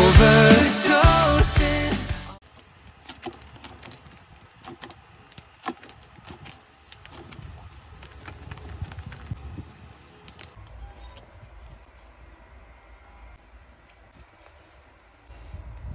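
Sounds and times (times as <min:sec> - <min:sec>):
small objects clicking and rustling: 0:02.4 - 0:10.6.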